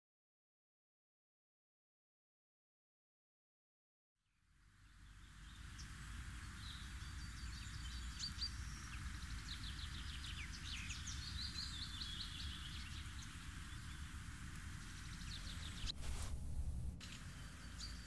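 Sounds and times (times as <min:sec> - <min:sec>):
outdoor hiss: 0:04.4 - 0:18.0
birds chirping and trilling: 0:04.8 - 0:18.0
low rumble: 0:15.7 - 0:17.0.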